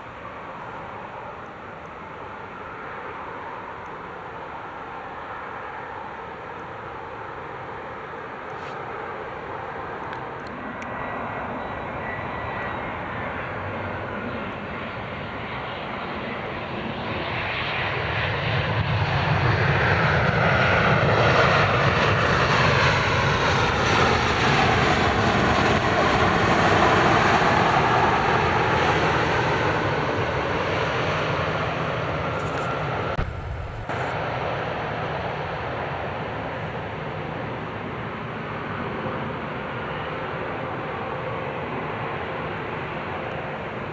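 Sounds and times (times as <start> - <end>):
jet airliner passing: 0.0 - 43.9.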